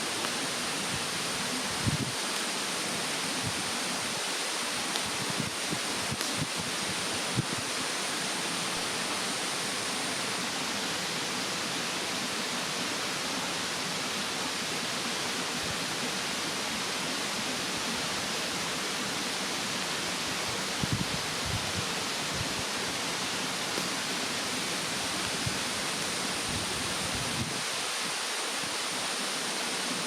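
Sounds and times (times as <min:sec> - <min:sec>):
mountain stream rushing: 0:00.0 - 0:30.0
bonfire crackling: 0:00.1 - 0:10.4, 0:22.4 - 0:29.2.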